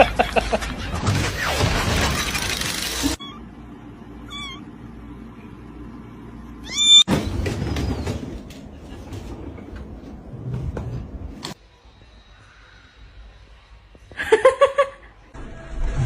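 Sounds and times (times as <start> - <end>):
cat meowing: 4.2 - 4.7, 6.6 - 7.1.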